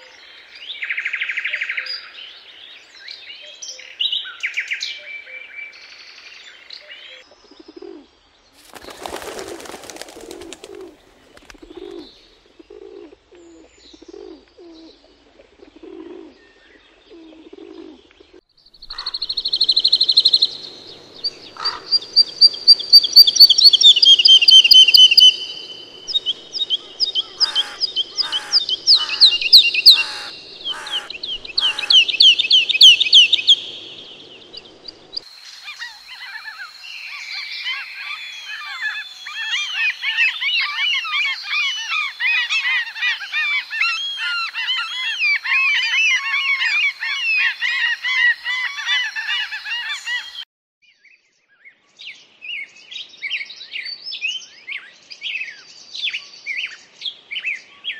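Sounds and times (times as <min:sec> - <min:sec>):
wings flapping: 0:08.6 - 0:12.0
pigeons cooing: 0:08.8 - 0:16.4, 0:17.0 - 0:19.3, 0:20.2 - 0:22.0, 0:24.2 - 0:35.2
parrots chirping: 0:18.8 - 0:36.4
high whistled bird call: 0:21.2 - 0:34.2.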